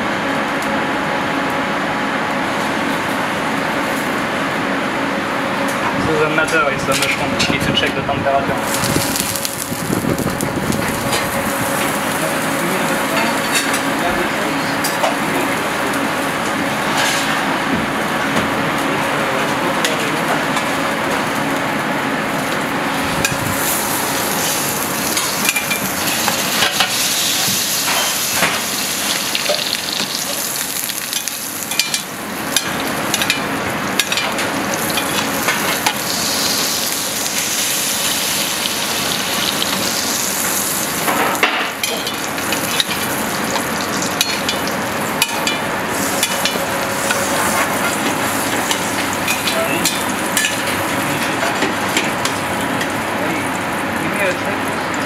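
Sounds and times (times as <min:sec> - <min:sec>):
mushroom sizzling in a pan: 0:23.6 - 0:33.3, 0:34.0 - 0:41.1.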